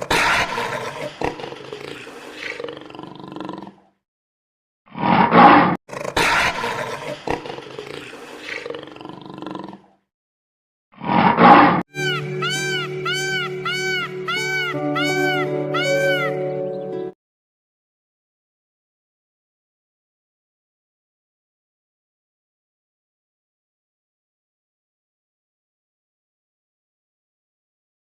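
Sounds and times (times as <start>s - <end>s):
lion roaring: 0.0s - 3.9s, 5.0s - 10.0s.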